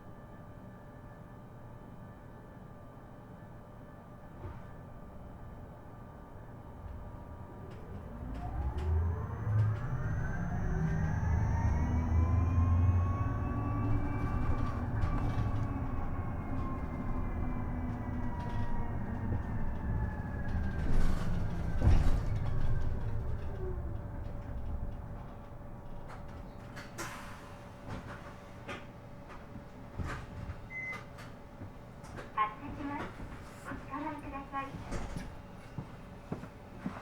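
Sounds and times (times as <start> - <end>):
electric bus motor whining: 6.4 - 27.4
low road rumble: 6.8 - 26.5.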